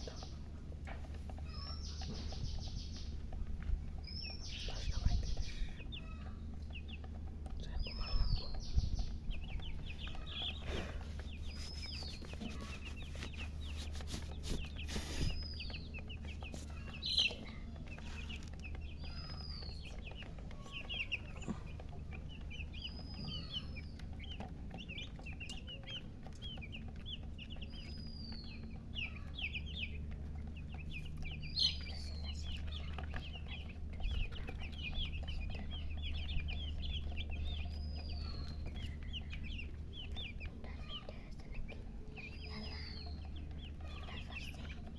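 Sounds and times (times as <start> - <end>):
baby chicks peeping: 0.0 - 44.9
higher chick chirp: 0.0 - 44.9
steady low hum: 0.0 - 44.9.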